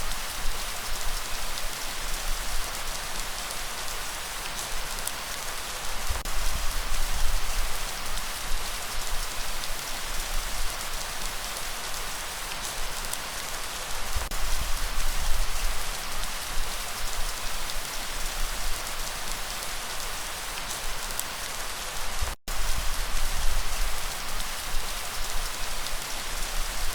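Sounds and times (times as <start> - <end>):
steady rain patter: 0.0 - 26.9.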